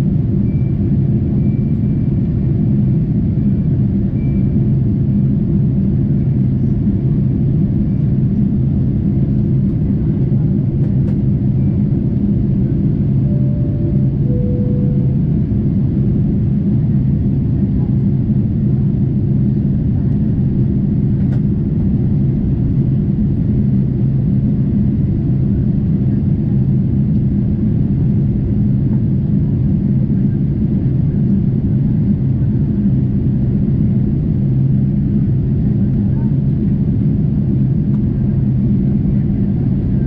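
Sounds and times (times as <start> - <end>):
airplane cabin drone: 0.0 - 40.0
cabin chime: 13.3 - 15.3.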